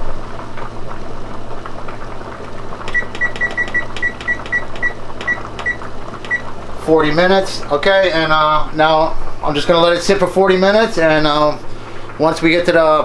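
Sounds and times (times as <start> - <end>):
oven control panel beeps: 2.9 - 6.5.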